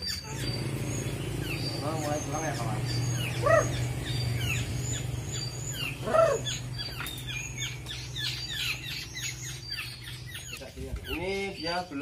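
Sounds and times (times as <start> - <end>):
louder lower bird call: 0.0 - 7.5
birds chirping: 0.0 - 12.0
steady low hum: 0.2 - 11.0.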